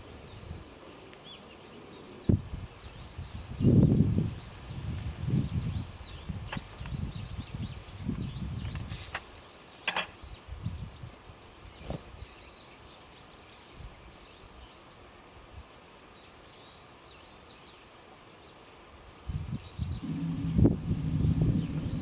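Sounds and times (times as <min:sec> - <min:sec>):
songbird chirping: 0:19.2 - 0:22.0
low rustling: 0:20.0 - 0:22.0.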